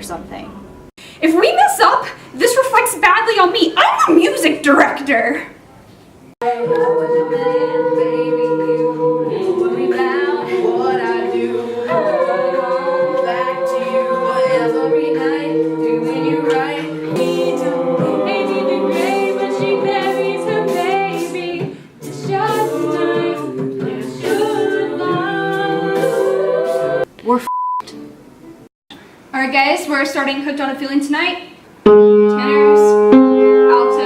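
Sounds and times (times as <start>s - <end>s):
a cappella group singing in harmony: 6.4s - 27.1s.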